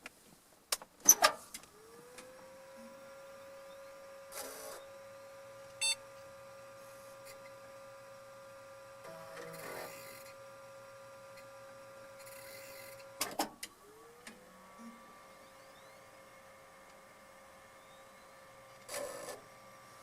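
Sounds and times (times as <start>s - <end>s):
short mechanical buzzes: 1.1s - 7.9s, 8.5s - 13.2s
floppy disk drive hum: 1.5s - 20.0s.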